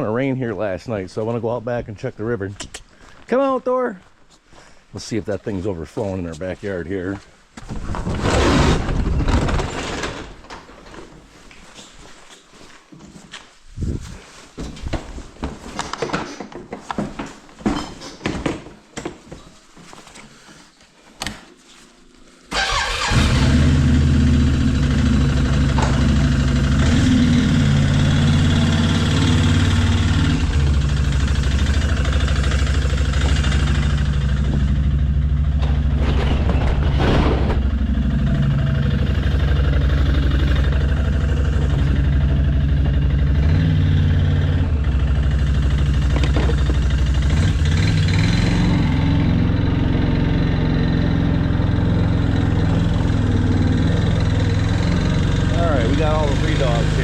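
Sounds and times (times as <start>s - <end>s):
small vehicle engine running: 22.6s - 57.0s.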